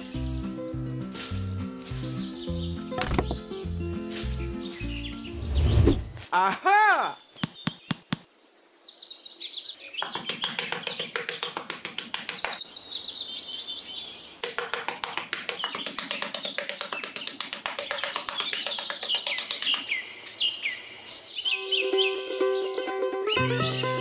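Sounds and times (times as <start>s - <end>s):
light background music: 0.0s - 5.5s
birds chirping: 0.0s - 24.0s.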